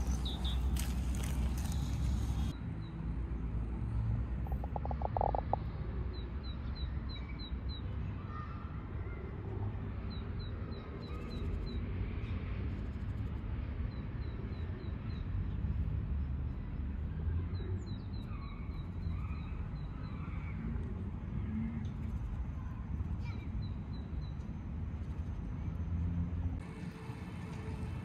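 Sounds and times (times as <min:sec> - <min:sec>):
songbird singing: 0:00.0 - 0:03.0, 0:04.5 - 0:08.4.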